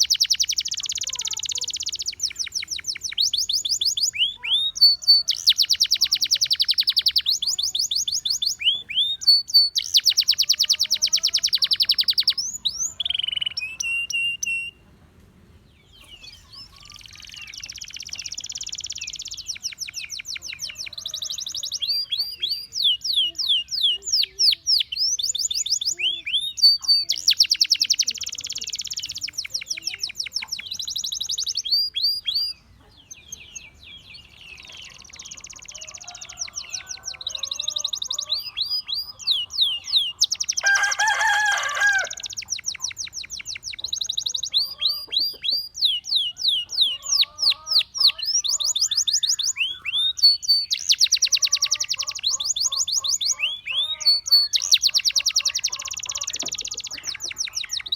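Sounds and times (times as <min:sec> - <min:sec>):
canary singing trills: 0:00.0 - 0:14.9, 0:15.8 - 0:57.9.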